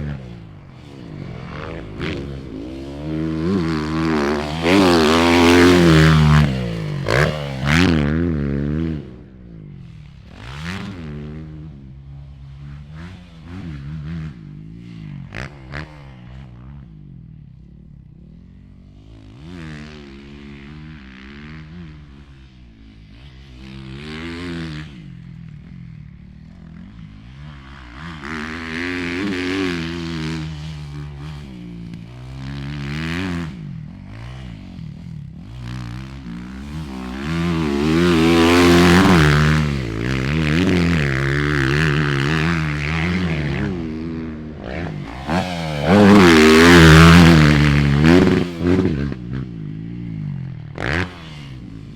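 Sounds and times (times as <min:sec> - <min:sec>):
dirt bike engine revving: 0:00.0 - 0:11.7, 0:26.4 - 0:51.9.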